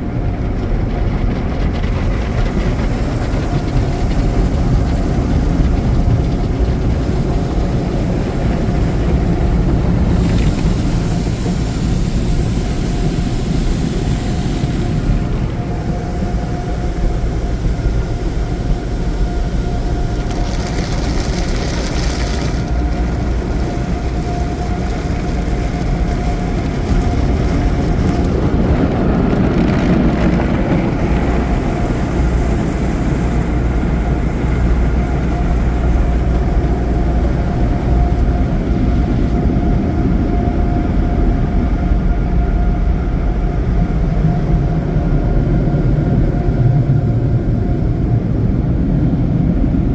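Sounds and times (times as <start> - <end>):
car wash machinery rumbling: 0.0 - 49.9
hissing water spray: 7.0 - 26.9.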